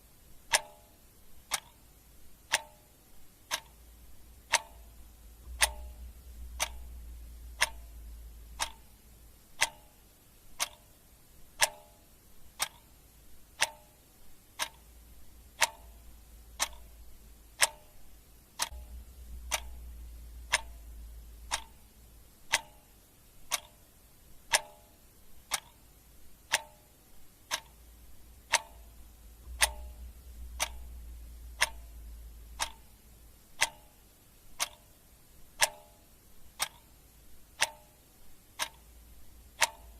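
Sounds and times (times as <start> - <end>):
clock ticking: 0.3 - 39.9
low rumble: 4.9 - 9.4, 18.7 - 22.3, 28.3 - 33.4.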